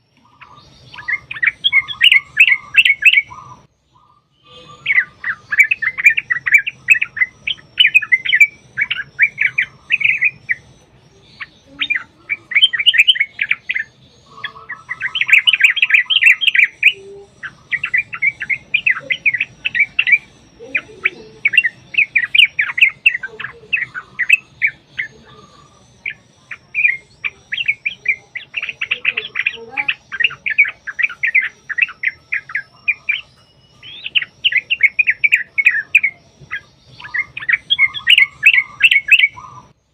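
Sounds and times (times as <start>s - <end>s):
bulbuls singing chattering runs: 0.0s - 39.9s.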